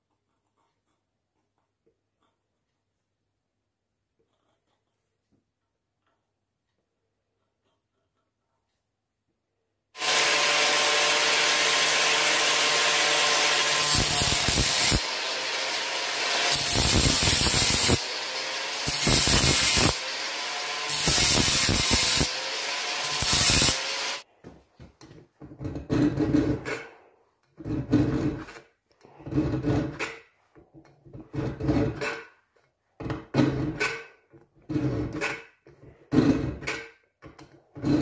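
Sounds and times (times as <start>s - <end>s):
electric grinder grinding steel: 10.0s - 24.2s.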